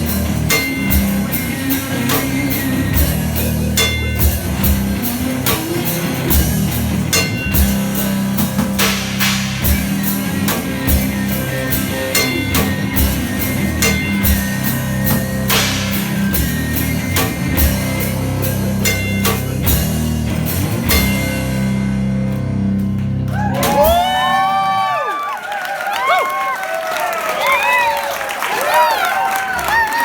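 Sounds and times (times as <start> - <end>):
guitar: 0.0 - 25.3
audience whooping and whistling: 23.3 - 30.0.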